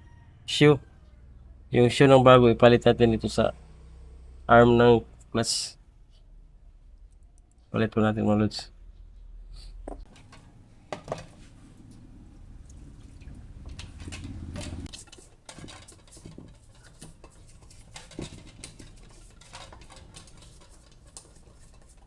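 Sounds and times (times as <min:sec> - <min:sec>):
hand tools clicking and tapping: 0:09.9 - 0:22.0.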